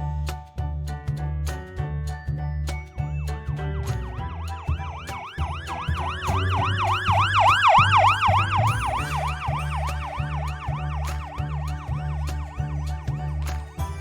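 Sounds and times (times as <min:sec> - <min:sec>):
background music with beat: 0:00.0 - 0:14.0
siren yelping: 0:04.4 - 0:13.3.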